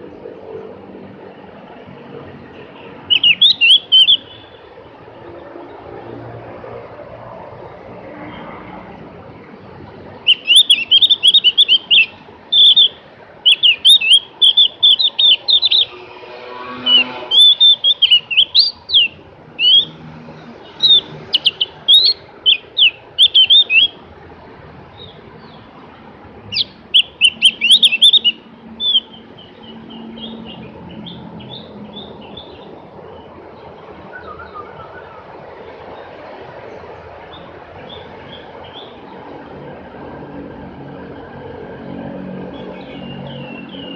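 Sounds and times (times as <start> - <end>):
bird high chattering song: 2.5 - 4.8, 10.2 - 24.0, 26.4 - 33.3, 37.3 - 39.1, 42.6 - 43.9.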